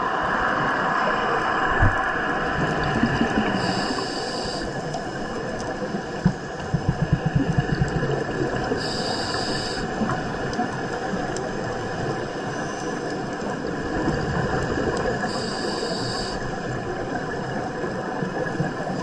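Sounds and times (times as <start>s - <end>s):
scuba regulator hissing inhalation: 3.6s - 4.8s, 8.8s - 10.0s, 15.3s - 16.5s
exhalation bubbling: 6.6s - 8.8s.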